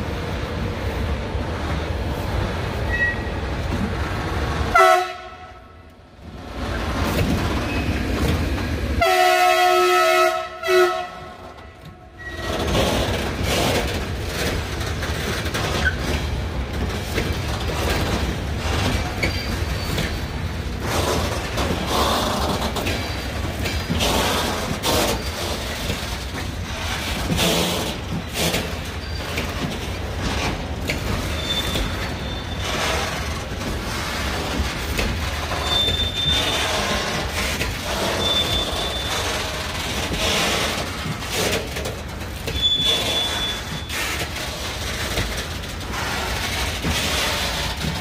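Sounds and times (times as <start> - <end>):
train wheels rumbling on rail: 0.0 - 48.0
high wheel squeals: 2.9 - 3.4, 12.2 - 12.7, 29.0 - 29.5, 31.2 - 32.8, 35.5 - 37.0, 37.9 - 39.6, 42.5 - 44.2
wheels knocking on rail joints: 6.5 - 48.0.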